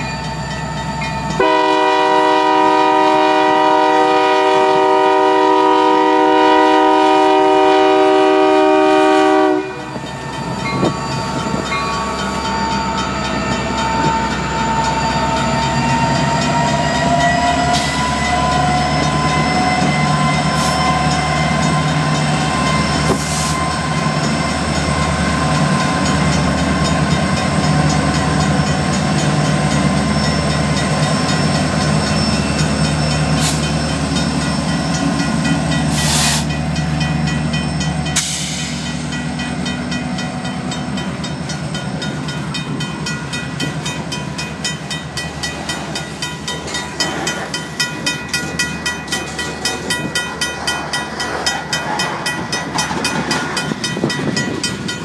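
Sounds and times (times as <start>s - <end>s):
wheels clacking on rails: 0.0s - 55.0s
locomotive air horn: 1.4s - 10.0s.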